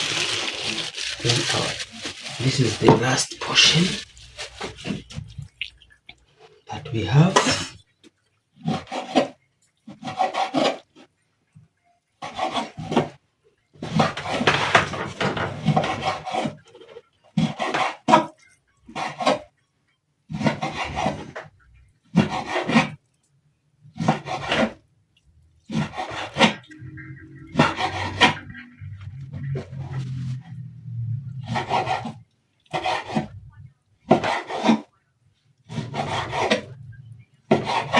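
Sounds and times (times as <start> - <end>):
knife sawing through raw meat: 34.1 - 34.9, 35.7 - 36.7.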